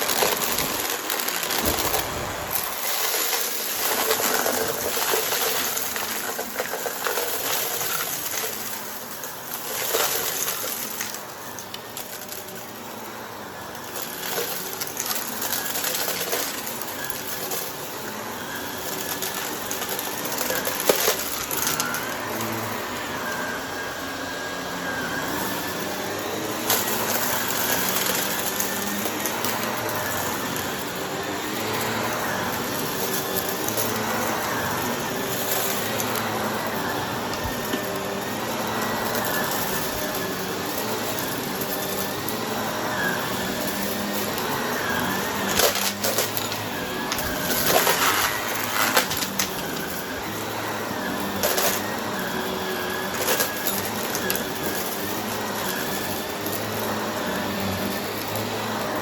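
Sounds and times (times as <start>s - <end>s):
debris crunching and rattling: 0.0s - 8.6s, 45.4s - 50.1s
vacuum cleaner running: 0.0s - 59.0s.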